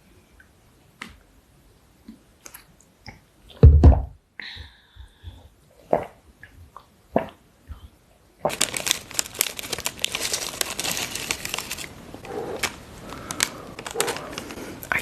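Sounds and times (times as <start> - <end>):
packaging crinkling: 8.4 - 15.0.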